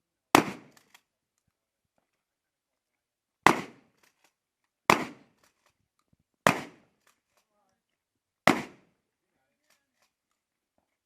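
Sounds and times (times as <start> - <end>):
shotgun blasts: 0.3 - 0.8, 3.4 - 3.9, 4.9 - 5.3, 6.4 - 6.9, 8.4 - 8.9.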